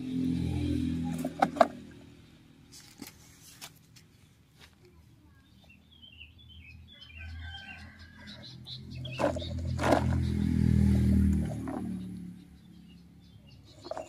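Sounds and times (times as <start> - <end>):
faint bird chirping: 4.2 - 14.0.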